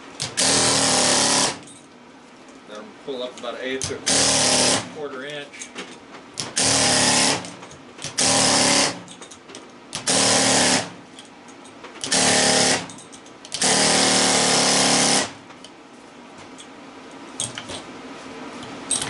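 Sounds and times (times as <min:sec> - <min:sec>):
pneumatic air chisel hammering: 0:00.2 - 0:01.7, 0:03.9 - 0:04.9, 0:06.4 - 0:09.1, 0:09.9 - 0:11.0, 0:12.0 - 0:15.4.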